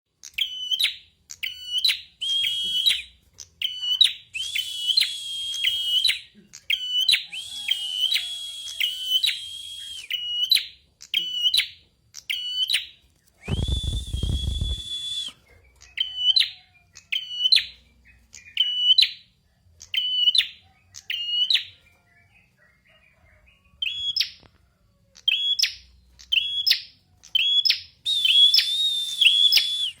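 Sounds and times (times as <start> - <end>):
songbird whistled notes: 0.4 - 11.7, 12.3 - 19.2, 25.2 - 30.0.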